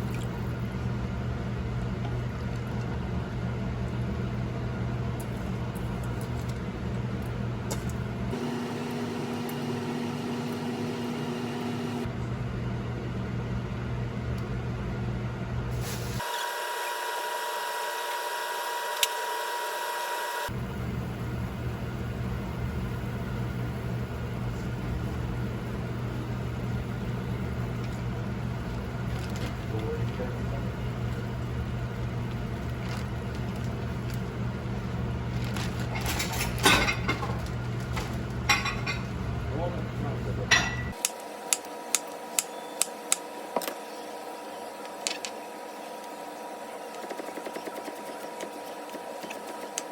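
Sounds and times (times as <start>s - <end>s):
motor hum: 0.0s - 12.4s, 16.3s - 40.5s.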